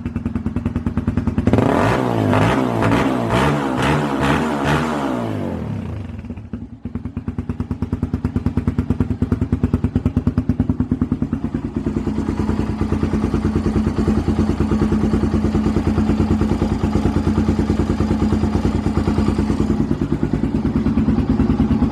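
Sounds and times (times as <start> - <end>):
motorcycle engine idling: 0.0 - 21.9.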